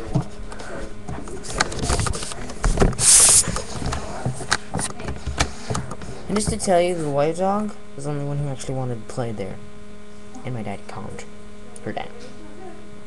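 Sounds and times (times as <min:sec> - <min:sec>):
dog breathy burst: 0:03.0 - 0:03.6.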